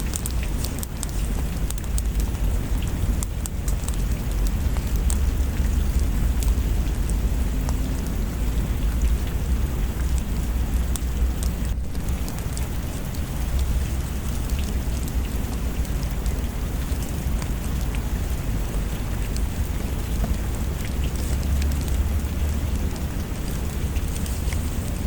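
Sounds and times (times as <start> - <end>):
steady rain: 0.0 - 25.0
deep low rumble: 14.6 - 25.0.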